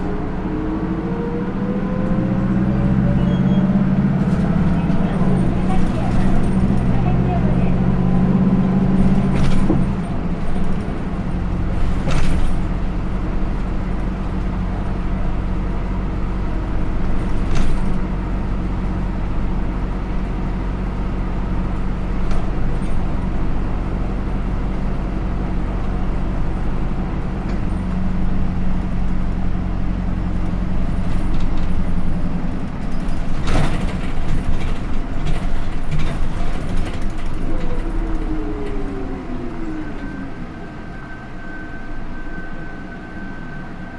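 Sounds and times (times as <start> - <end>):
bus diesel engine running: 0.0 - 43.9
bus body knocks and rattles: 3.3 - 20.4, 21.4 - 24.5, 25.9 - 38.4.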